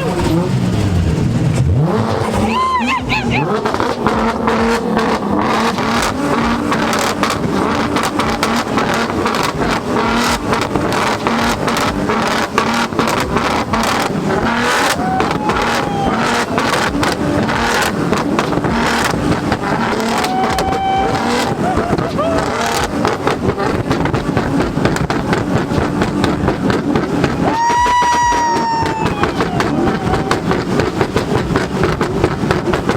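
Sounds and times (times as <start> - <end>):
engine on launch limiter: 0.0 - 32.9
exhaust pops: 0.0 - 32.9.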